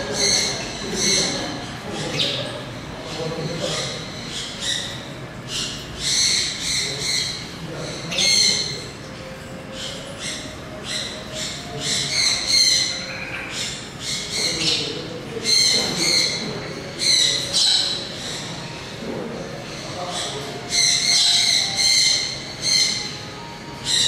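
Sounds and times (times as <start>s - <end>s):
birds squawking: 0.0s - 24.0s.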